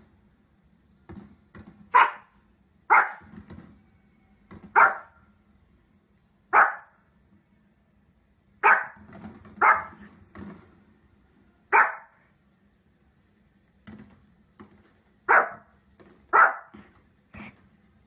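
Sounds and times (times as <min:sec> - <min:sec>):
small dog yapping: 0:01.9 - 0:02.3, 0:02.9 - 0:03.3, 0:04.7 - 0:05.2, 0:06.6 - 0:06.9, 0:08.6 - 0:09.0, 0:09.6 - 0:10.0, 0:11.7 - 0:12.1, 0:15.3 - 0:15.7, 0:16.3 - 0:16.8
small dog barking: 0:01.9 - 0:03.3, 0:04.7 - 0:05.2, 0:06.5 - 0:07.0, 0:08.6 - 0:10.0, 0:11.7 - 0:12.2, 0:15.3 - 0:15.7, 0:16.3 - 0:16.8.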